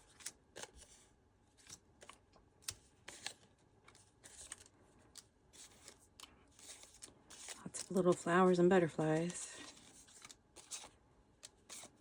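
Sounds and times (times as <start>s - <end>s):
paper pieces rustling: 3.0s - 10.9s.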